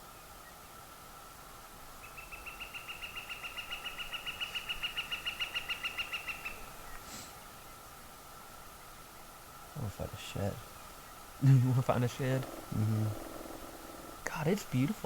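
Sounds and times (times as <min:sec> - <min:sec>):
bird trilling: 0:12.2 - 0:14.3.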